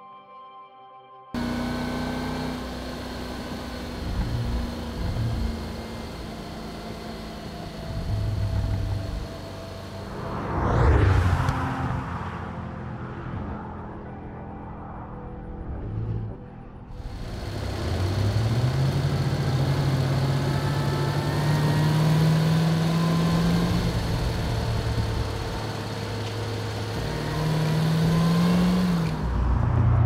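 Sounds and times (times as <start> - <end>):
car engine pulling hard: 1.4 - 12.1, 17.0 - 30.0.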